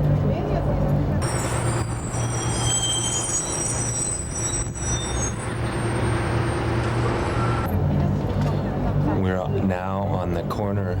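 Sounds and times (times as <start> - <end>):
thin high whistling tones: 1.2 - 7.7.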